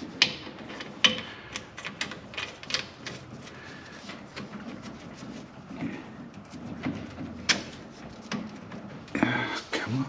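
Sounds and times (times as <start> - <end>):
hose fittings clicking and knocking: 0.0 - 9.2.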